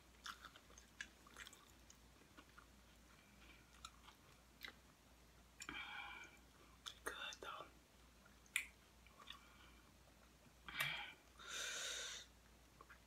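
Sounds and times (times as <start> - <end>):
chewing crunchy chips: 0.1 - 4.8.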